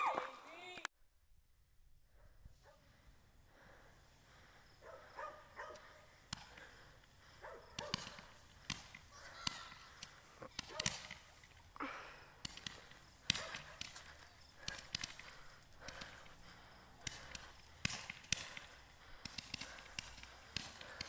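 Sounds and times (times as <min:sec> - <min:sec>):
distant fireworks popping: 0:04.3 - 0:21.0.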